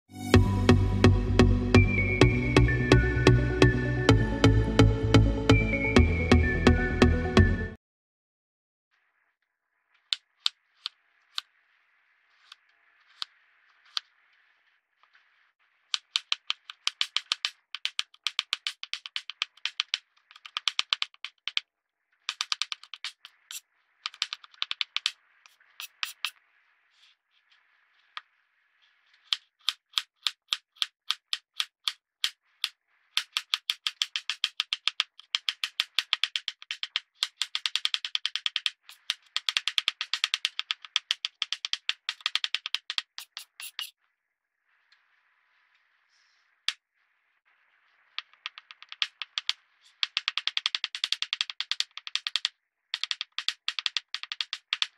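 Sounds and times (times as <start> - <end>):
knife cutting crumbly product: 40.8 - 43.9.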